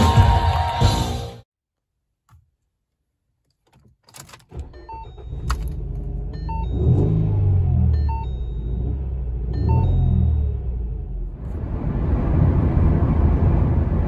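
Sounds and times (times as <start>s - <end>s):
engine cranking: 3.6s - 7.2s.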